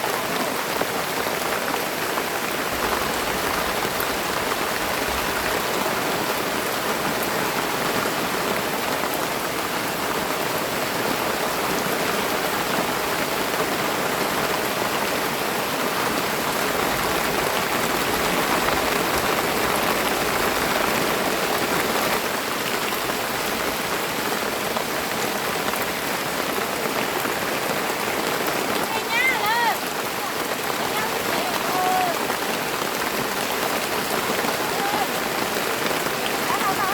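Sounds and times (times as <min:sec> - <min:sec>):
rain falling steadily: 0:00.0 - 0:36.9.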